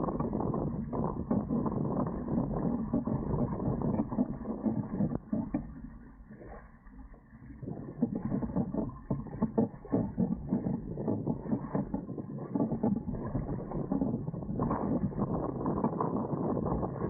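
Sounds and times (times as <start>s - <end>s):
water slapping against boat hulls: 7.9s - 17.0s.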